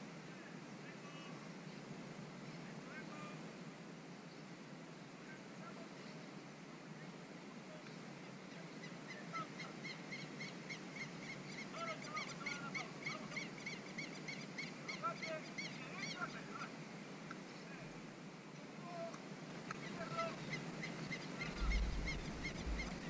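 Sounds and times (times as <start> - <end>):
low outdoor background noise: 0.0 - 23.0
bird calling in rapid notes: 19.7 - 23.0
lower bird calls: 19.7 - 23.0.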